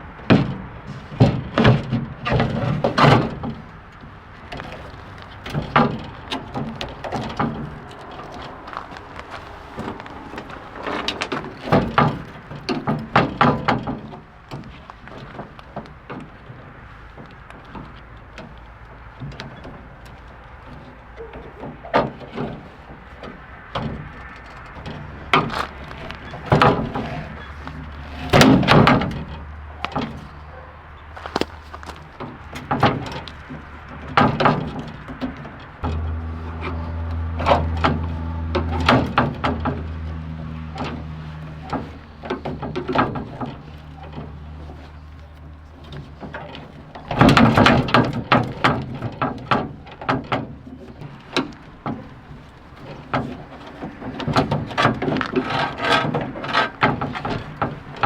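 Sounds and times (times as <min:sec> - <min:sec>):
steady low hum: 0:35.8 - 0:42.8.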